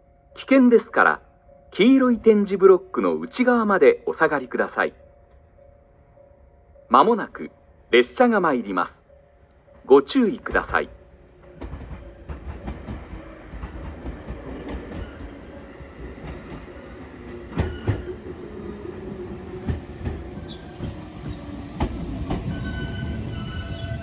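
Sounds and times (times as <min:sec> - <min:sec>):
train rolling rumble: 0:09.6 - 0:24.0
wheels clacking over rail joints: 0:11.4 - 0:24.0
high brake squealing: 0:17.6 - 0:21.4, 0:22.4 - 0:24.0.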